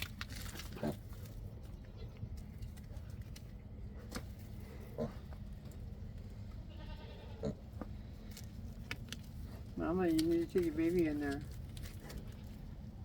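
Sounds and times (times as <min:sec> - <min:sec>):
farm animal bleating: 0:06.4 - 0:07.8.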